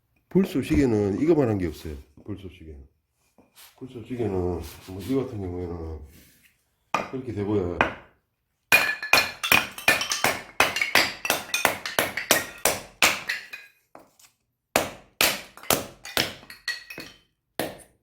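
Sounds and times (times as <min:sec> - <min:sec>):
axe striking wood: 0:14.7 - 0:16.5, 0:17.6 - 0:18.0.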